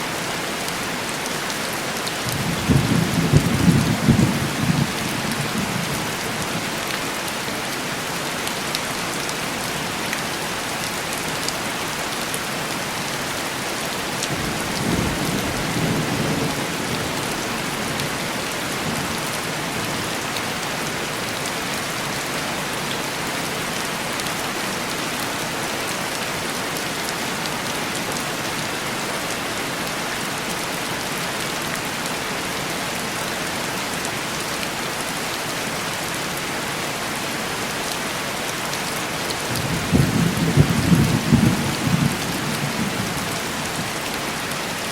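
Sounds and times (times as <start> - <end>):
heavy rain on window glass: 2.1 - 7.4, 13.5 - 21.2, 38.9 - 44.8.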